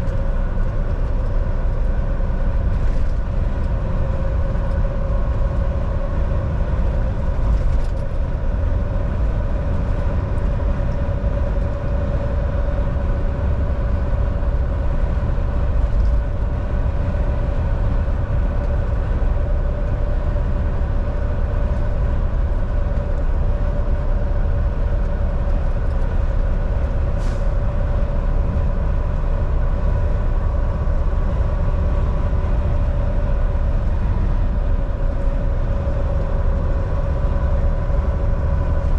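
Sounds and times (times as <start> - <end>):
road rumble: 0.0 - 38.9
truck engine drone: 0.0 - 38.9.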